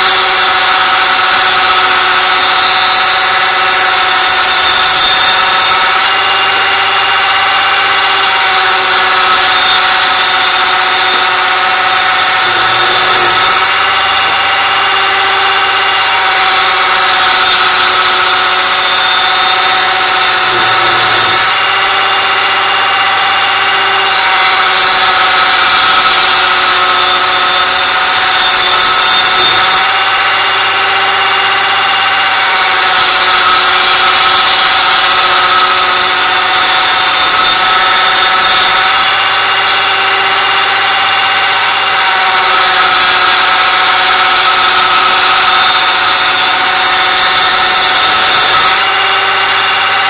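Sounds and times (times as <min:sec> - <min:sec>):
machine cutting wood: 0:00.0 - 0:50.0
woodworking machine motor whine: 0:00.0 - 0:50.0.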